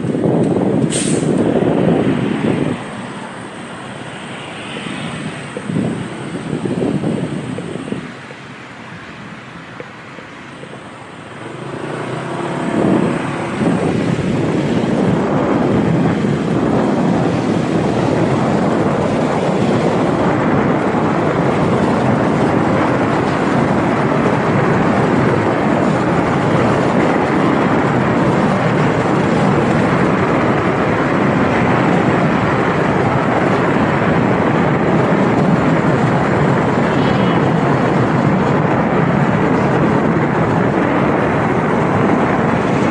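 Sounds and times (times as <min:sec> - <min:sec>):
rushing air: 0:00.0 - 0:42.9
motorcycle engine: 0:10.8 - 0:42.9.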